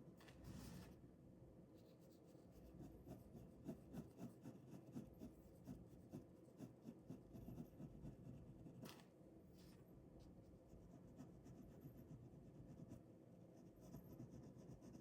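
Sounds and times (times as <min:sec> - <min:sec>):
pen drawing on paper: 0:02.6 - 0:09.0.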